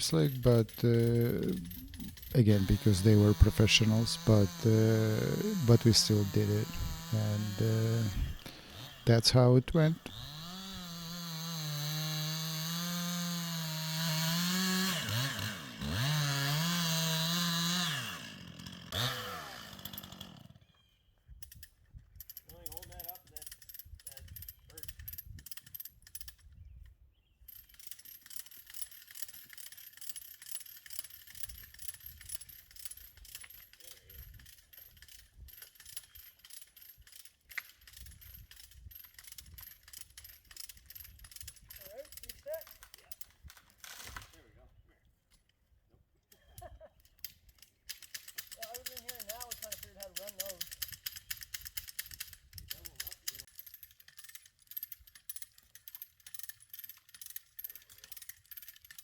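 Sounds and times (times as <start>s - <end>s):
chainsaw cutting at high revs: 0.0s - 20.6s.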